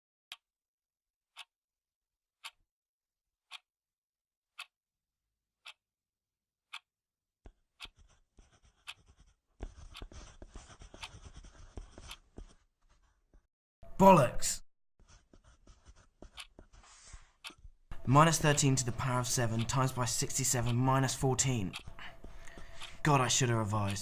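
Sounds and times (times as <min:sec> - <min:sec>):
clock ticking: 0:02.4 - 0:02.6, 0:03.5 - 0:03.7, 0:05.6 - 0:05.8, 0:06.7 - 0:06.9, 0:07.7 - 0:08.1, 0:08.8 - 0:12.3, 0:15.8 - 0:16.8, 0:17.4 - 0:24.0
pens scratching on paper: 0:07.5 - 0:13.5, 0:15.0 - 0:24.0.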